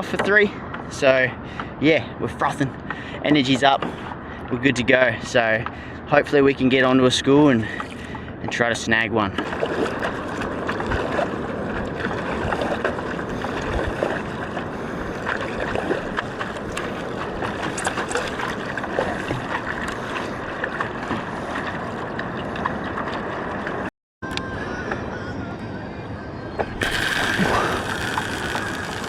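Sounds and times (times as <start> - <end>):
water sloshing around paddleboard: 7.6 - 23.9.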